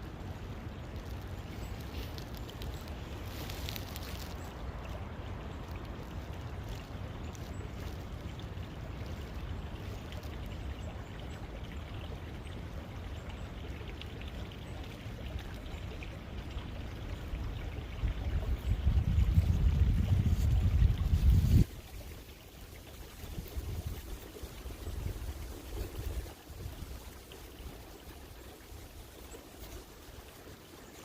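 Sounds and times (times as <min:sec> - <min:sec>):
brook babbling over stones: 0:00.0 - 0:31.0.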